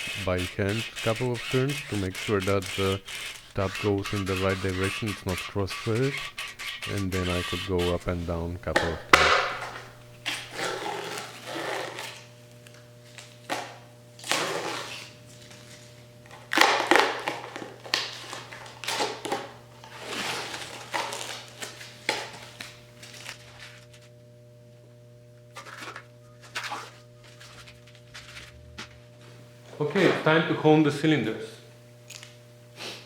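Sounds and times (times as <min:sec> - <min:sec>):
thread tap scraping metal: 0:00.0 - 0:10.5
steady electrical hum: 0:00.0 - 0:33.0.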